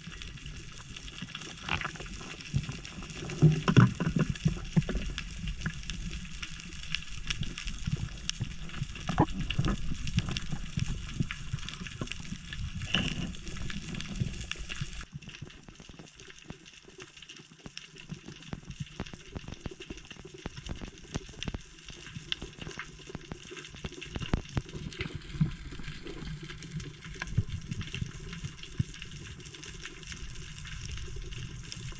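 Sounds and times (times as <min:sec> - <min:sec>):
sea water sloshing: 0:00.0 - 0:15.1
dense crackle of small clicks: 0:00.0 - 0:31.9.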